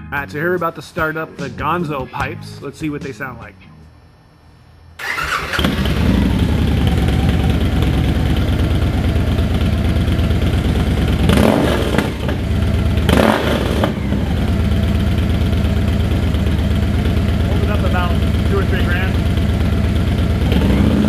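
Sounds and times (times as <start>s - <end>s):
motorcycle engine idling and revving: 5.0s - 21.0s.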